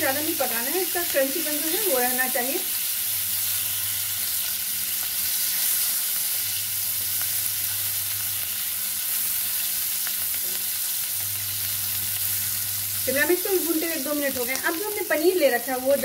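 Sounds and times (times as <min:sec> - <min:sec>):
vegetables sizzling in a pan: 0:00.0 - 0:16.0.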